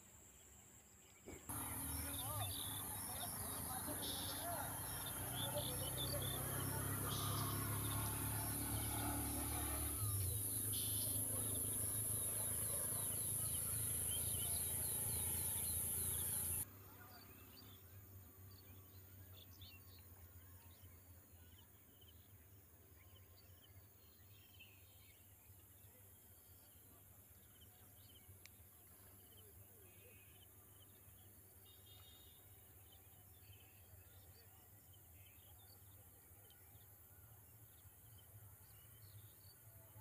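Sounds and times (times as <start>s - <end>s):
bird chirps: 1.2s - 17.8s.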